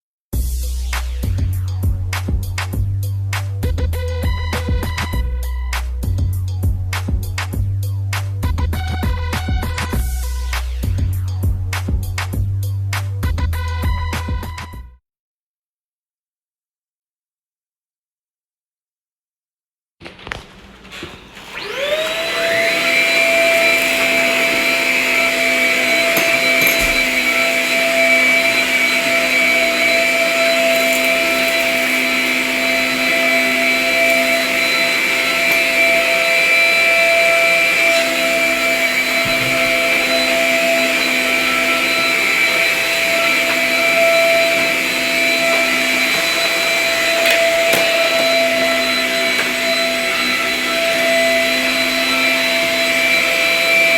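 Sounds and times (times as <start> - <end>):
vacuum cleaner motor whine: 20.1 - 53.9.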